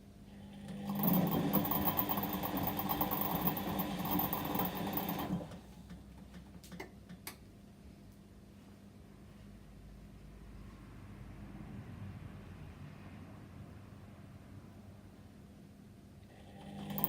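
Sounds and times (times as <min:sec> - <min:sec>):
washing machine drum whirring: 0:00.4 - 0:06.5, 0:16.5 - 0:17.0.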